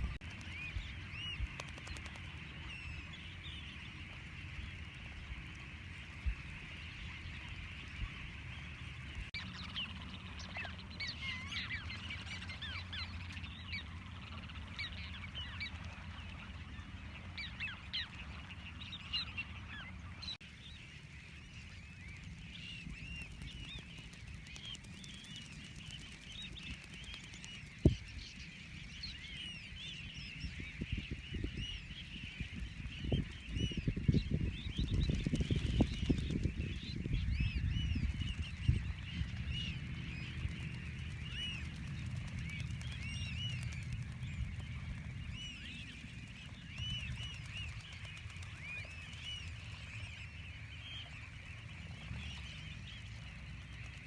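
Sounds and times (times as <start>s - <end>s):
flock of birds calling: 0.0s - 54.0s
steady low rumble: 32.4s - 50.8s.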